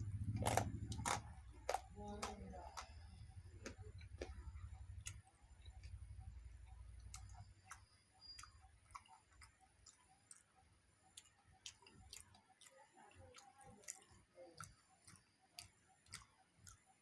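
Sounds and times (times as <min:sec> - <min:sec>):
soft wet chewing: 0:00.0 - 0:17.0.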